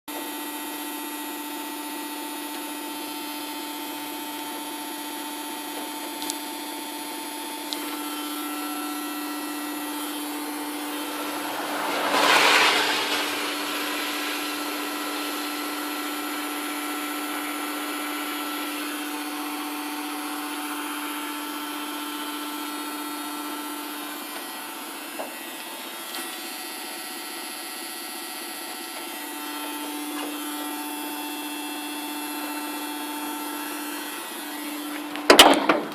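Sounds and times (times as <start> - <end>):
engine droning: 5.8 - 35.9
rushing swell: 9.3 - 18.1.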